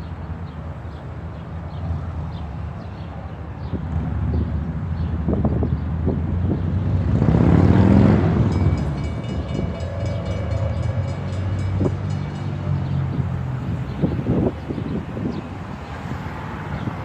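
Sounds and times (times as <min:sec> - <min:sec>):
heavy vehicle passing: 0:06.0 - 0:17.0.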